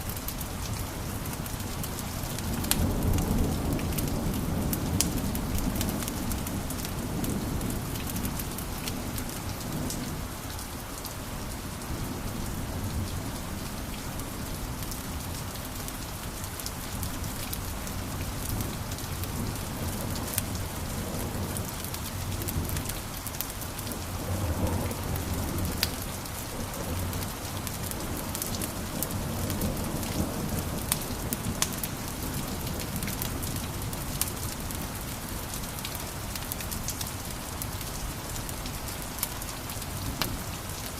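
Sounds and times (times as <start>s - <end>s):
fire crackling and popping: 26.8s - 38.6s.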